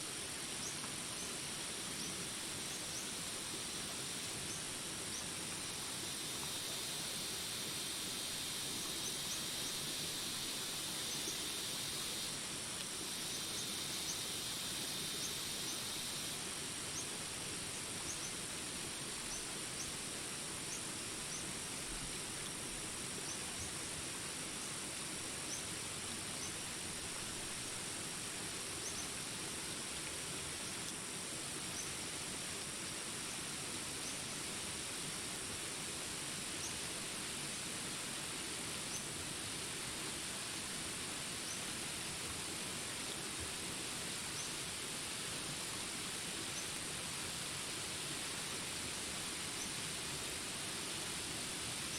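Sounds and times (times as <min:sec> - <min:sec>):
buzzing insect chorus: 0:00.1 - 0:51.9
high insect trill: 0:00.2 - 0:22.4.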